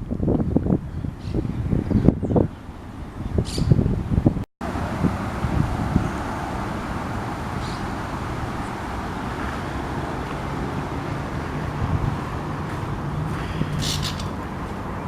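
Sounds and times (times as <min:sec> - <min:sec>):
road traffic rumble: 0:00.0 - 0:15.0
wind on microphone: 0:00.0 - 0:15.0
high bird chirp: 0:00.8 - 0:03.8.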